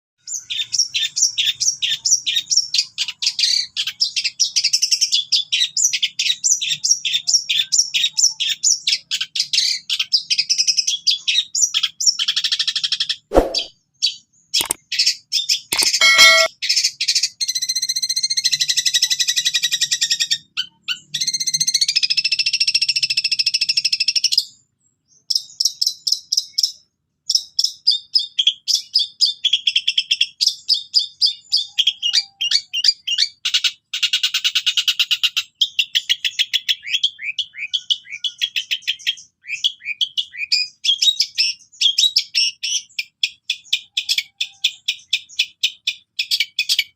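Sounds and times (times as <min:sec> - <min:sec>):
harsh clicky bird notes: 0:14.6 - 0:14.8, 0:15.8 - 0:16.5
bird singing: 0:15.4 - 0:16.5, 0:34.6 - 0:46.9.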